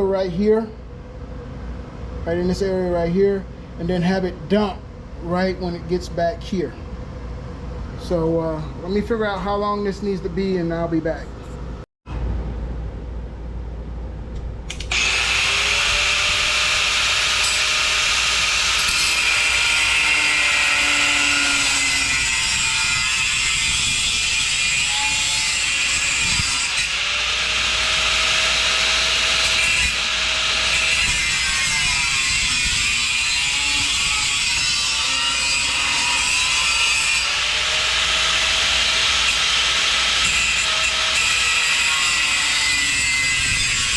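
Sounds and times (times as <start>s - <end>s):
power tool cutting steel tubing: 14.7s - 43.9s.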